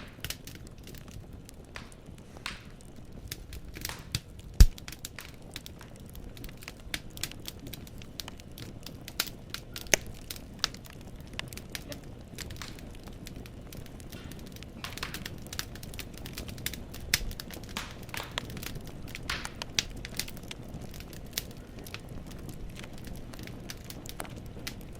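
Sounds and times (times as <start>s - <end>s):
fireplace logs crackling: 0.0s - 24.9s.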